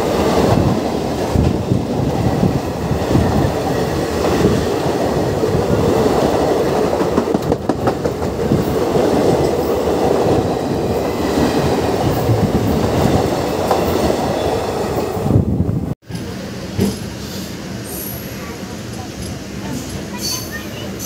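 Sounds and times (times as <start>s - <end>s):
train wheels on rails: 0.0s - 21.0s
clickety-clack over rail joints: 0.4s - 14.2s, 16.0s - 17.1s.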